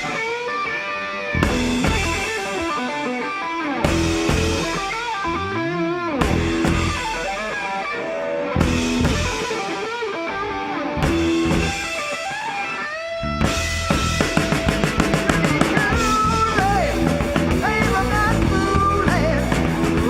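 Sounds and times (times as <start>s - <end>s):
drums: 0.0s - 20.0s
electric guitar lead: 0.0s - 20.0s
bass: 1.3s - 2.8s, 3.8s - 7.6s, 8.4s - 9.6s, 10.7s - 12.0s, 13.2s - 20.0s.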